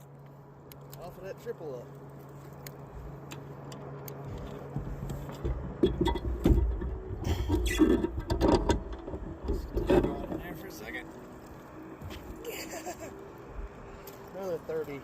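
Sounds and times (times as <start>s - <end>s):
low hum: 0.0s - 15.0s
knocks and rattling in kayak: 4.3s - 10.6s.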